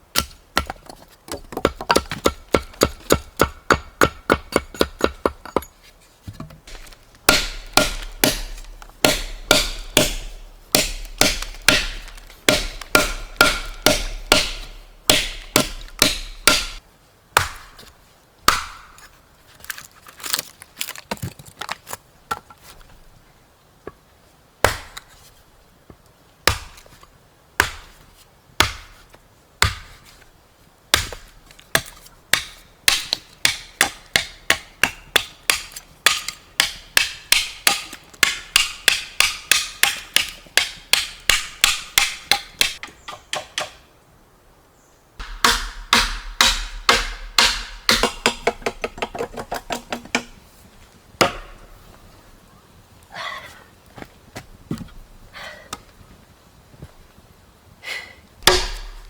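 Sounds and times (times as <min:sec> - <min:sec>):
blade chopping into wood: 0:06.7 - 0:16.8, 0:18.5 - 0:18.9, 0:31.0 - 0:43.8, 0:45.2 - 0:50.4, 0:51.2 - 0:51.6, 0:58.4 - 0:59.0.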